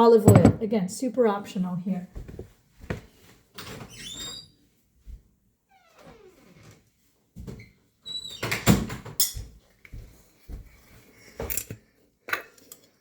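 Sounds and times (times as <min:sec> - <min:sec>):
kitchen utensils clattering: 0:00.0 - 0:00.6.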